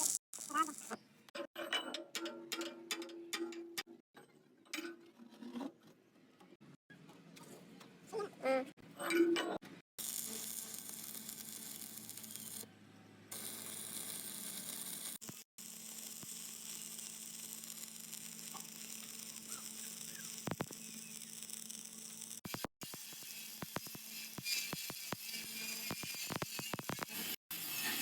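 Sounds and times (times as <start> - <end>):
welding arc sizzling and crackling: 0.0 - 1.0, 10.0 - 12.6, 13.3 - 28.0.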